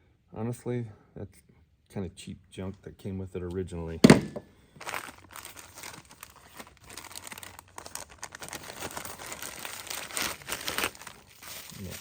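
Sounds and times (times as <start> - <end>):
packaging crinkling and rustling: 4.2 - 12.0.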